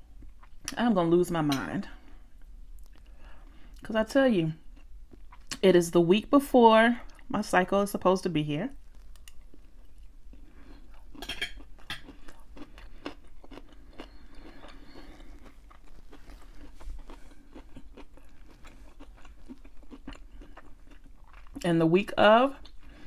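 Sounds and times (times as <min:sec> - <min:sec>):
person chewing food: 0:00.1 - 0:00.8, 0:02.0 - 0:03.8, 0:04.6 - 0:05.6, 0:08.8 - 0:21.6, 0:22.6 - 0:23.0.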